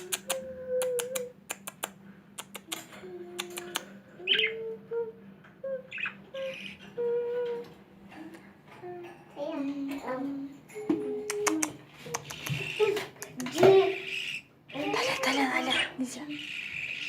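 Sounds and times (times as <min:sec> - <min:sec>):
sharp clicks: 0:00.0 - 0:03.9, 0:11.2 - 0:13.6
pet birds chirping: 0:00.0 - 0:04.8, 0:05.6 - 0:07.2, 0:10.8 - 0:17.0
loud bird calls: 0:03.6 - 0:04.7, 0:05.9 - 0:07.0, 0:12.1 - 0:17.0.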